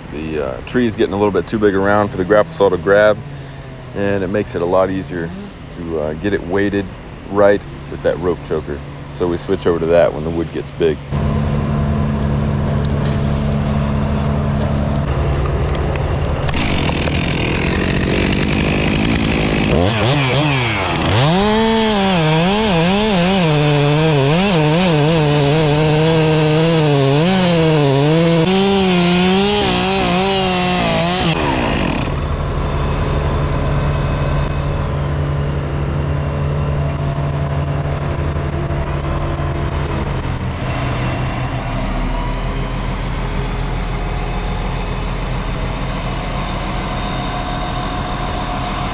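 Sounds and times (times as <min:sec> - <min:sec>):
truck engine running: 0:00.0 - 0:48.9
chainsaw cutting wood: 0:07.4 - 0:11.6, 0:16.3 - 0:32.3.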